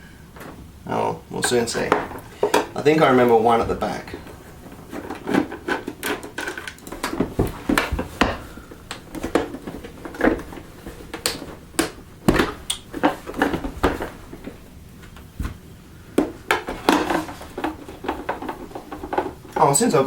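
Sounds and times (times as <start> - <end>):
plastic clicks and clatter: 4.9 - 15.3, 16.2 - 19.6.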